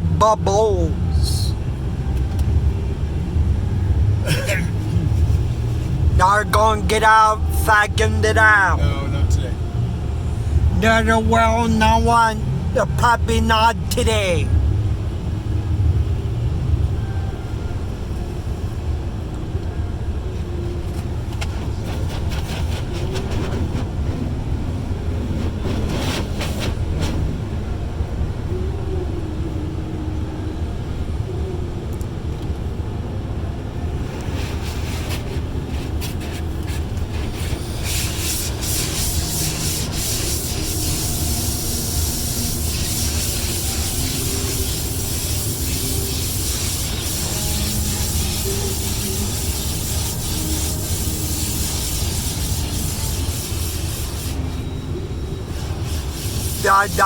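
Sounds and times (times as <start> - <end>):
steady low rumble: 0.0 - 57.0
car wash brushes scrubbing: 21.4 - 24.3, 25.2 - 27.3, 34.2 - 54.4, 55.5 - 57.0.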